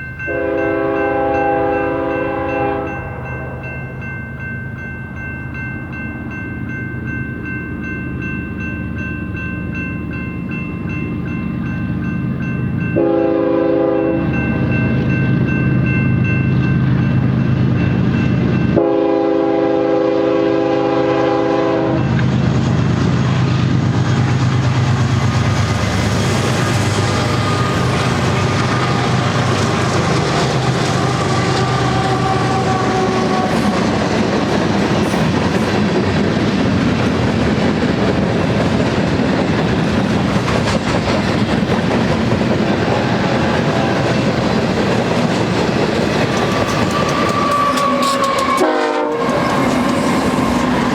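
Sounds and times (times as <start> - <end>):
train wheels rumbling on rails: 0.0 - 50.9
locomotive air horn: 0.3 - 3.2, 13.0 - 14.3, 18.8 - 22.1, 30.8 - 33.9, 46.6 - 50.4.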